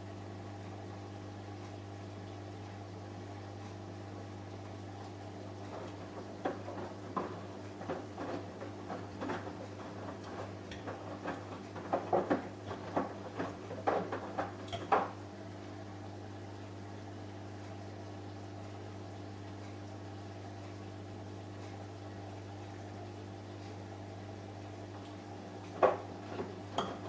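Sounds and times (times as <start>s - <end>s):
washing machine hum: 0.0s - 27.0s
washing machine knocks and clicks: 5.6s - 15.2s, 25.5s - 27.0s.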